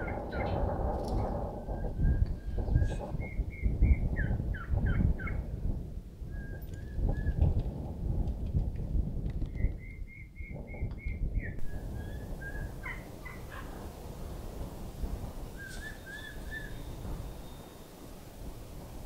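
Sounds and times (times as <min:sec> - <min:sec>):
low uneven rumbling: 0:11.6 - 0:19.0
bird calling high notes: 0:15.4 - 0:18.1.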